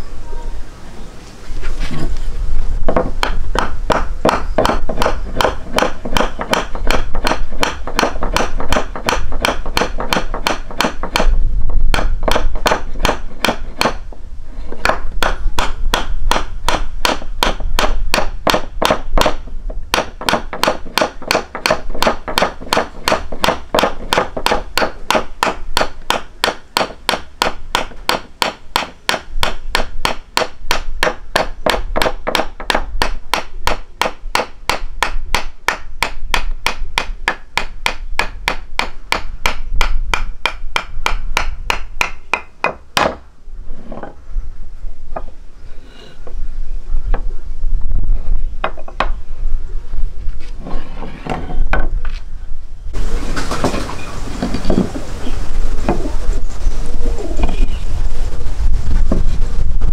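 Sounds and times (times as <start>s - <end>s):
steady sharp knocking: 2.9s - 11.3s, 14.8s - 43.2s.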